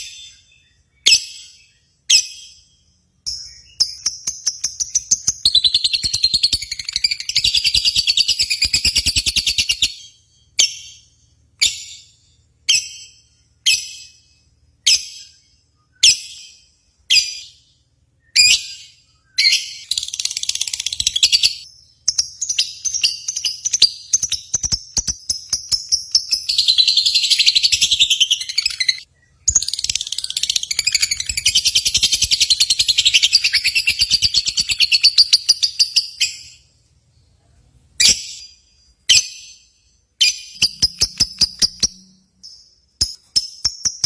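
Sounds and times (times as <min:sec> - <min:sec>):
sharp bird chirps: 0:00.0 - 0:37.4, 0:38.0 - 0:44.0
lovebird chattering trill: 0:03.3 - 0:12.0, 0:18.4 - 0:36.6, 0:40.2 - 0:42.6.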